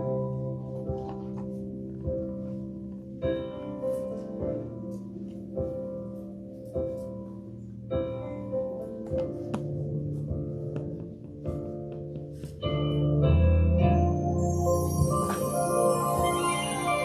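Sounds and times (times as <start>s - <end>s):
keyboard playing sustained chords: 0.0s - 17.0s
light percussion strikes: 14.4s - 17.0s.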